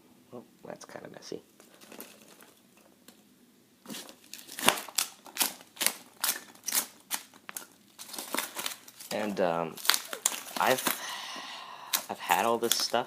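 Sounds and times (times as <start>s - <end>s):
packing material rustling: 1.6s - 2.6s, 3.8s - 13.0s.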